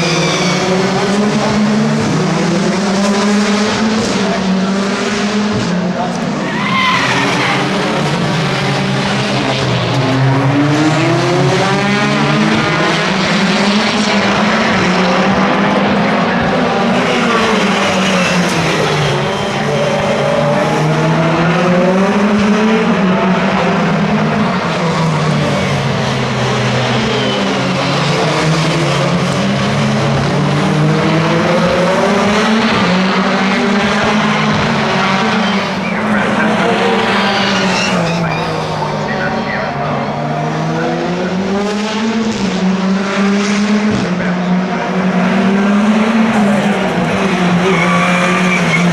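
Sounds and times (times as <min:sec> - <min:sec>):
race car engines at full throttle: 0:00.0 - 0:48.9.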